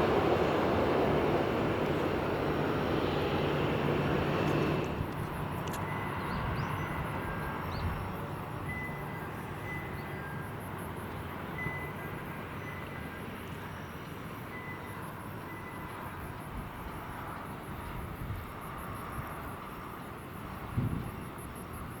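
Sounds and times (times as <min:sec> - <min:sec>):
jet engine rush: 0:00.0 - 0:06.7.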